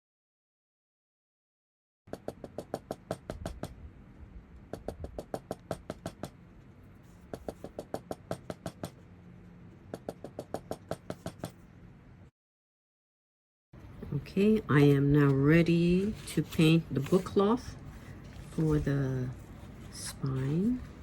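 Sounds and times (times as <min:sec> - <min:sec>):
low steady hum: 0:03.2 - 0:12.3, 0:13.8 - 0:21.0.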